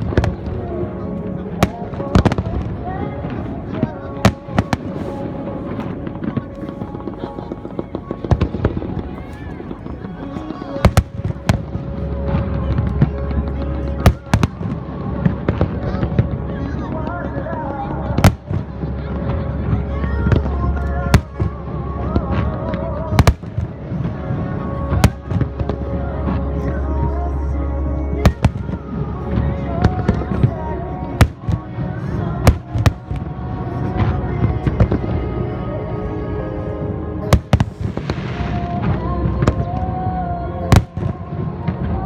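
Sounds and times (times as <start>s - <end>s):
music playing: 0.0s - 42.0s
fireworks bangs: 4.1s - 11.8s, 14.0s - 14.8s, 18.2s - 18.7s, 21.2s - 21.6s, 23.2s - 23.8s, 31.2s - 31.6s, 37.3s - 38.9s.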